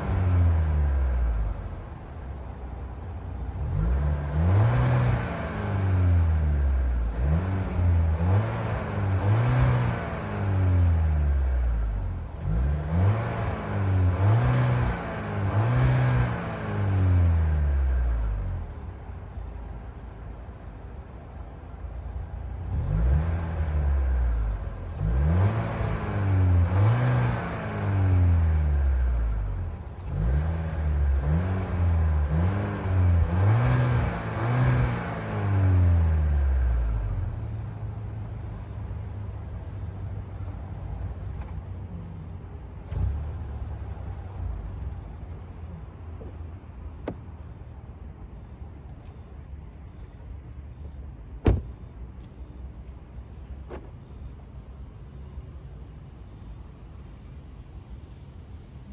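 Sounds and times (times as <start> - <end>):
car engine revving and idling: 0.0 - 41.7.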